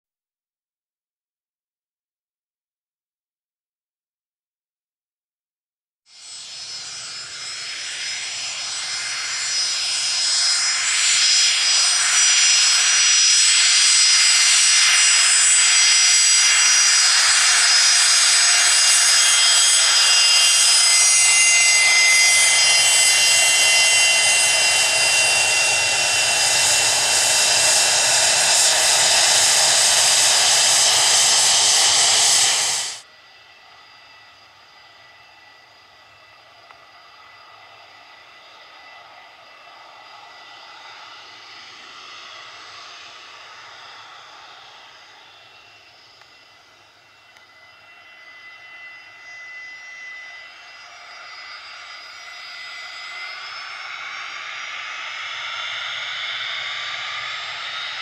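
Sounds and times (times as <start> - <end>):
high-pitched engine whine: 6.1 - 58.0
jet engines roaring: 6.4 - 58.0.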